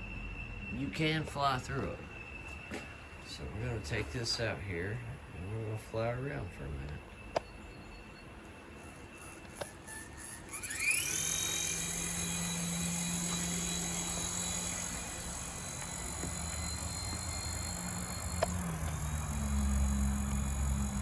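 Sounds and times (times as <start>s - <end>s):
low rotor hum: 3.4s - 21.0s
toy helicopter motors whining: 8.0s - 21.0s.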